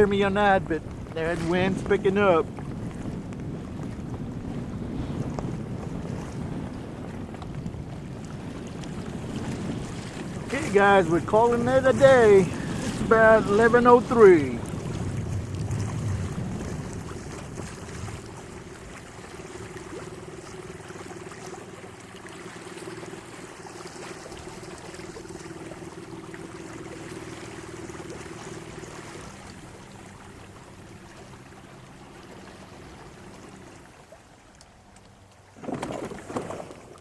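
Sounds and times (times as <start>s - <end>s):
water rippling along hull: 0.0s - 37.0s.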